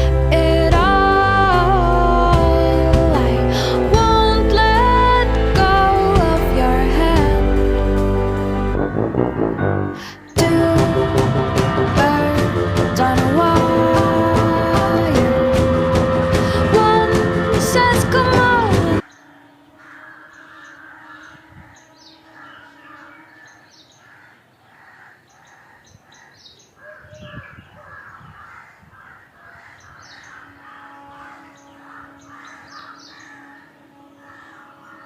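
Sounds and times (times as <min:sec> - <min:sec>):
music: 0:00.0 - 0:19.0
crows cawing: 0:19.0 - 0:35.0
high bird chirps: 0:29.8 - 0:35.0.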